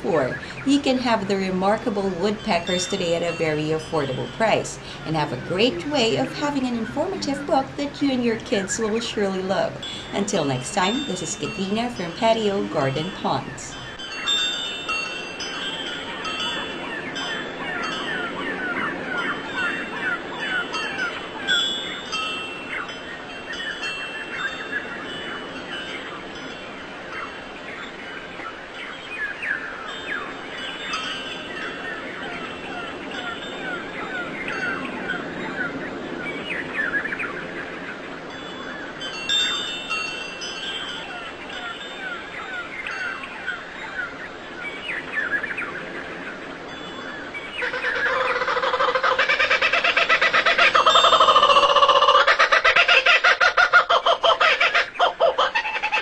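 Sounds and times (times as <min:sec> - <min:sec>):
birds chirping in chorus: 0:00.0 - 0:56.0
rapidly pulsing bird call: 0:47.1 - 0:56.0.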